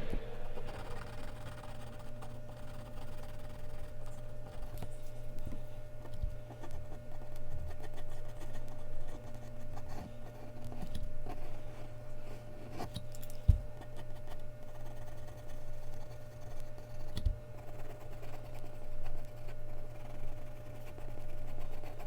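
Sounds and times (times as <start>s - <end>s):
sharp thump: 0.0s - 1.1s
pencil scratching on paper: 0.0s - 4.9s, 6.5s - 13.0s, 13.8s - 22.0s
steady low hum: 0.0s - 22.0s.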